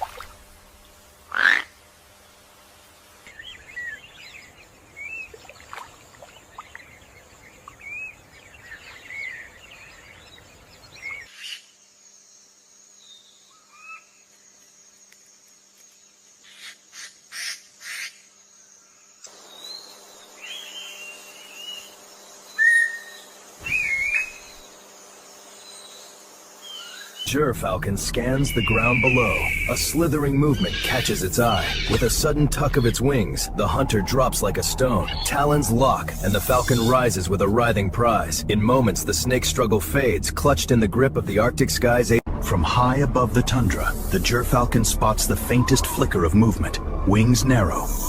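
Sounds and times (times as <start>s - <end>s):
bird chirps and whistled calls: 22.5s - 24.6s, 28.2s - 37.0s.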